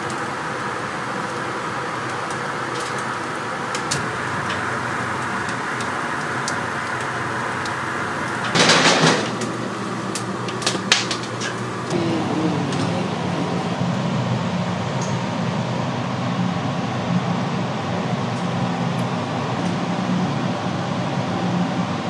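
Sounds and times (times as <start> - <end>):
ventilation fan hum: 0.0 - 22.0.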